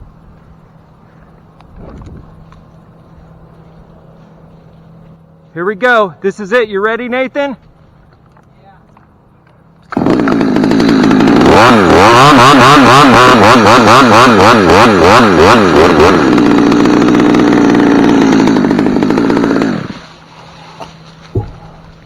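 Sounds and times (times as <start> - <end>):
chainsaw cutting wood: 9.8 - 22.0.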